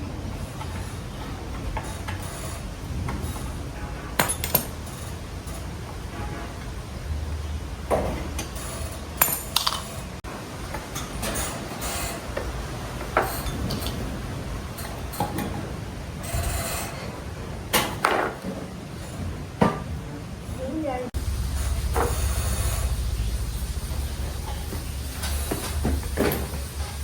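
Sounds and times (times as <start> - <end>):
metal tools clinking: 4.2 - 5.7.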